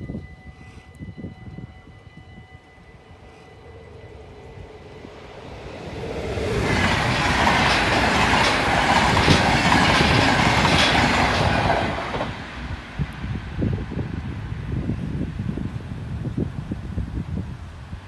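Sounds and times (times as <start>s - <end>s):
passenger train rushing past: 0.0s - 17.9s
wheels clicking over rail joints: 5.4s - 13.2s.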